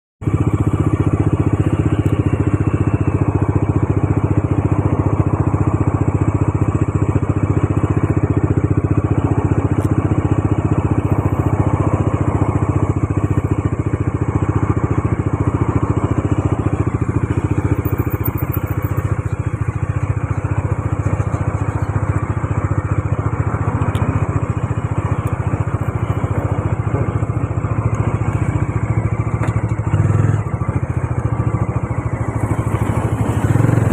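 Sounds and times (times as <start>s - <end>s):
motorcycle engine running: 0.2s - 33.9s.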